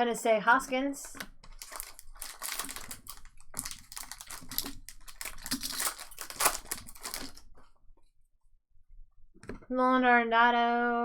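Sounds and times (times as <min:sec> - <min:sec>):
cards being handled: 0:01.1 - 0:07.6
wrappers crinkling: 0:01.1 - 0:07.7.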